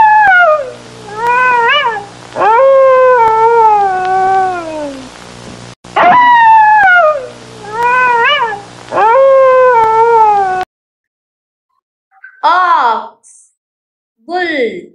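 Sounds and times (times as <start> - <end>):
fox yelping howls: 0.0 - 5.0, 6.0 - 10.6.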